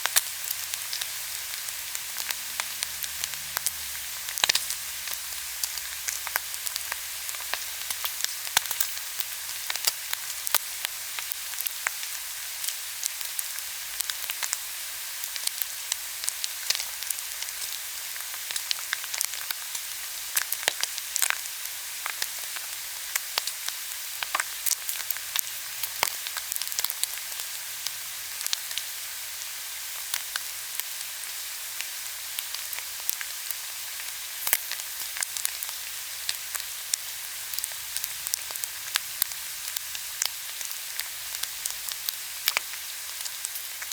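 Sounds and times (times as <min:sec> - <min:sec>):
fat crackling and popping: 0:00.0 - 0:12.0, 0:31.8 - 0:43.9
meat sizzling: 0:00.0 - 0:43.9.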